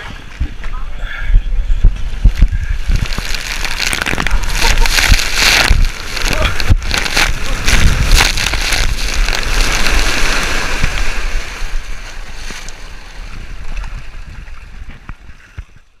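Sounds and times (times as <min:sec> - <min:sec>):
water rushing and splashing: 0:01.6 - 0:15.3
sharp splashes: 0:02.8 - 0:12.9.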